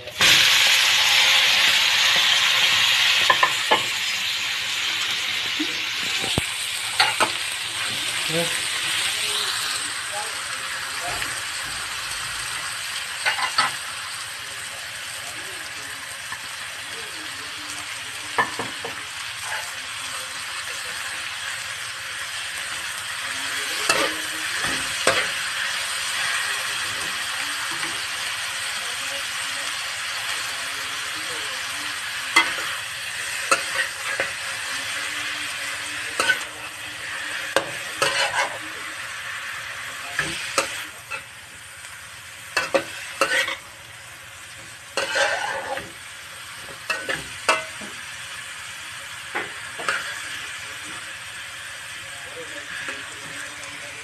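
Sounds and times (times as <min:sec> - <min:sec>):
food sizzling in a wok: 0:00.0 - 0:54.0
spatula scraping and knocking pan: 0:37.5 - 0:38.6, 0:42.6 - 0:43.6, 0:45.0 - 0:46.0.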